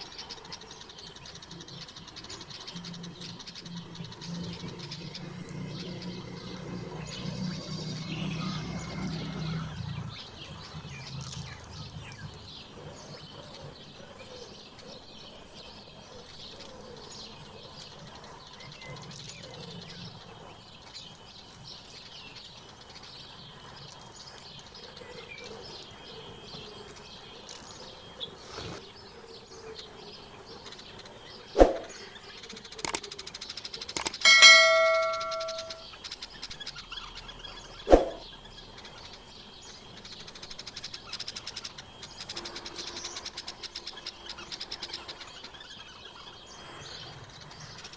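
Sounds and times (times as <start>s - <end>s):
songbirds chirping: 0.0s - 47.9s
sharp knock: 34.0s - 35.8s.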